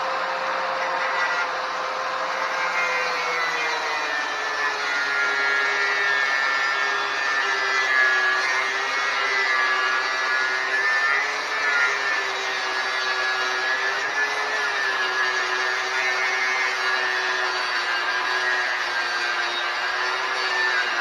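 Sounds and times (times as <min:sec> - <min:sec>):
angle grinder cutting metal: 0:00.0 - 0:21.0.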